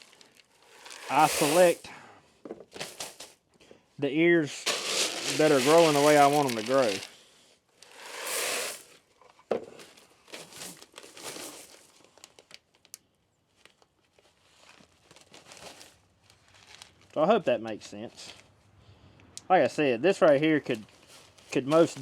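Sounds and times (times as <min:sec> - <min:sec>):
dried corn crinkling and rustling: 0:00.0 - 0:01.9, 0:04.4 - 0:18.6, 0:20.3 - 0:22.0.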